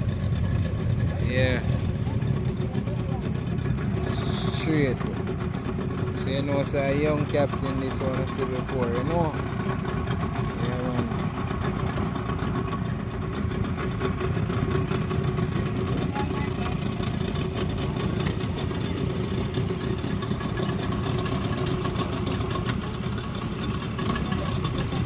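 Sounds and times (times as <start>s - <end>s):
outboard motors running: 0.0s - 25.0s.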